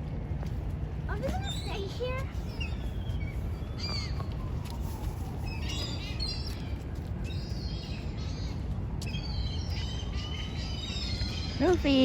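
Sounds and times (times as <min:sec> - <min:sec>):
seagulls calling: 0:01.1 - 0:12.0.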